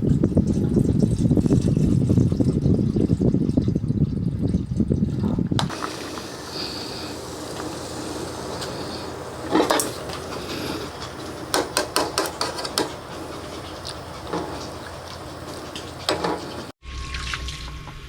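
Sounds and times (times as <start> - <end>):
utensils and dishes clinking: 5.7 - 16.7.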